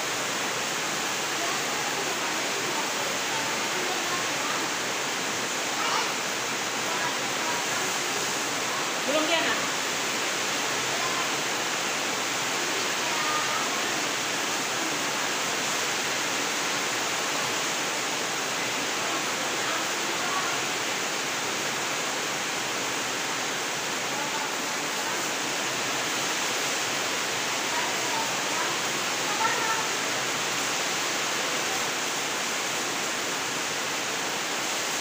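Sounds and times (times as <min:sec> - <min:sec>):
heavy rain falling: 0:00.0 - 0:35.0
faint voices: 0:01.2 - 0:09.8.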